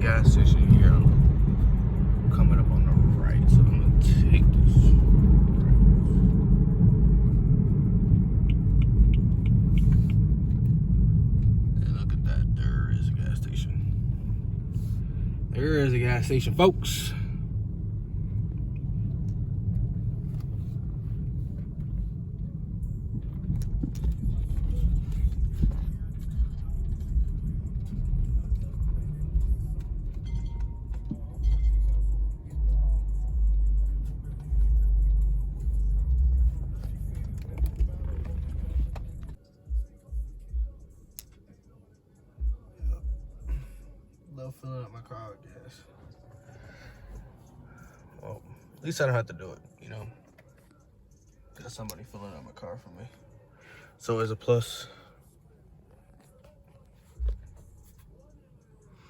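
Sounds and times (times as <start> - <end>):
turn signal ticking: 0.0 - 44.2, 57.2 - 58.4
car road and engine rumble: 0.0 - 59.0.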